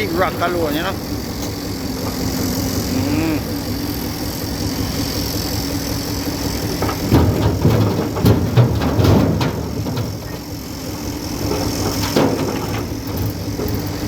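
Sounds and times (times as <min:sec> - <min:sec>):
engine idling: 0:00.0 - 0:14.0
knocks and clatter: 0:06.5 - 0:14.0.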